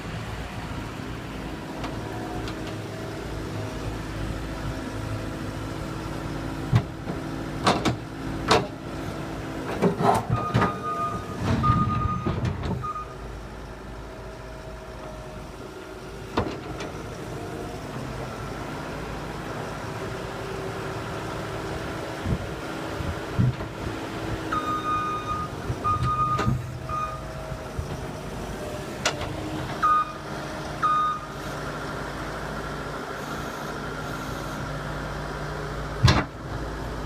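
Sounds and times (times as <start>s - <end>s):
skid steer engine running: 0.0s - 37.0s
back-up alarm beeps: 10.4s - 13.2s, 24.5s - 27.3s, 29.8s - 30.2s, 30.8s - 31.3s.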